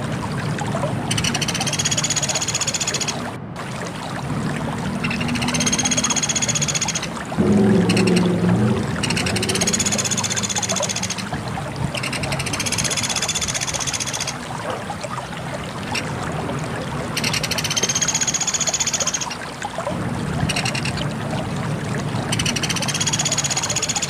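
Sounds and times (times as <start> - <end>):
low hum: 7.2 - 11.4.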